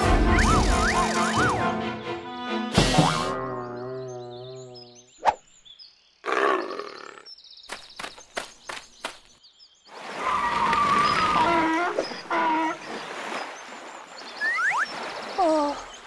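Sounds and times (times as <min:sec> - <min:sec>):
sharp taps like footsteps: 0:07.7 - 0:09.4.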